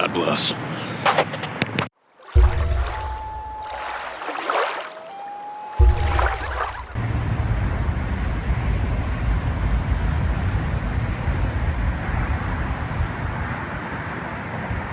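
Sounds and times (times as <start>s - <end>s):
low rumbling noise: 5.8s - 14.9s.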